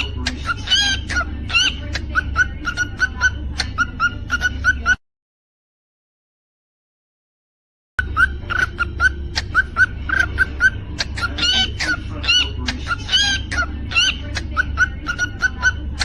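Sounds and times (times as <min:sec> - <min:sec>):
cockatiel chirping: 0:00.0 - 0:05.0, 0:08.0 - 0:16.0
steady low hum: 0:08.0 - 0:16.0.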